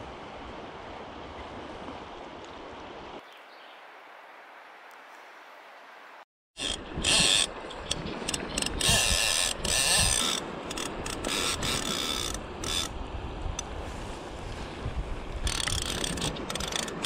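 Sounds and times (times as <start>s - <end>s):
fishing reel ratchet buzzing: 6.6s - 12.9s, 15.4s - 17.0s.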